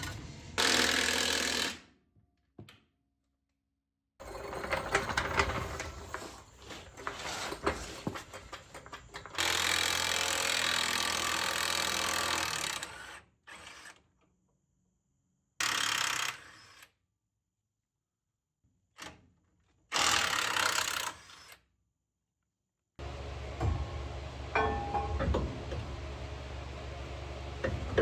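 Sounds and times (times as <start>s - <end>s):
power tool running: 23.0s - 28.0s
hand tools knocking on metal: 23.6s - 26.1s.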